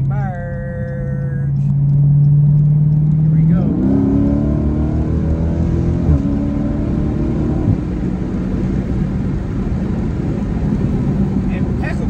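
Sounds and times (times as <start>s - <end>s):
car engine accelerating: 0.0s - 12.0s
road noise: 0.0s - 12.0s.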